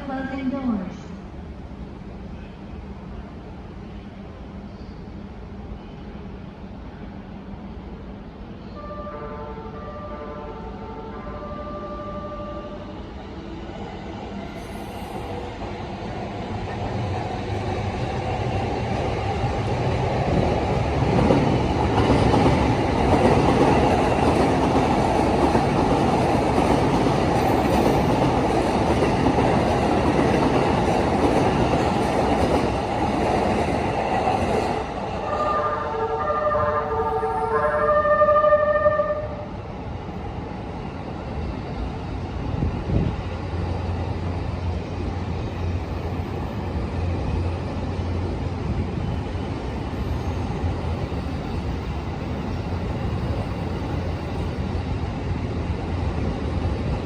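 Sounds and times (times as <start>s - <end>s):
train running noise: 0.0s - 57.0s.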